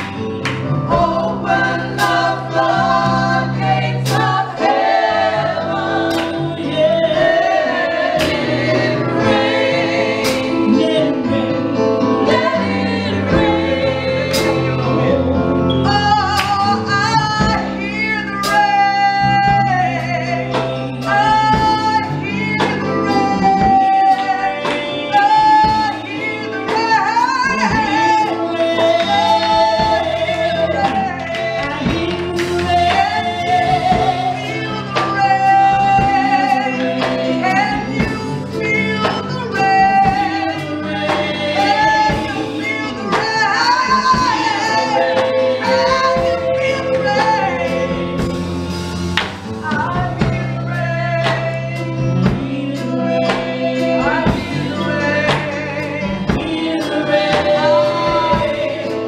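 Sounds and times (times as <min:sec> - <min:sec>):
band accompaniment: 0:00.0 - 0:59.0
drums: 0:00.0 - 0:59.0
gospel singing lead voice: 0:00.0 - 0:59.0.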